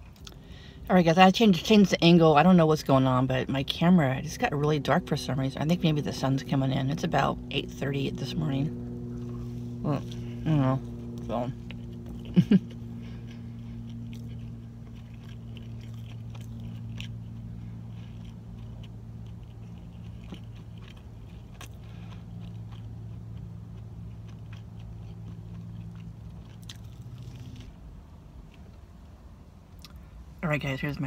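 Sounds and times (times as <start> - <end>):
chewing sandwich: 0.0 - 0.5, 8.2 - 30.2
steady low hum: 0.0 - 31.0.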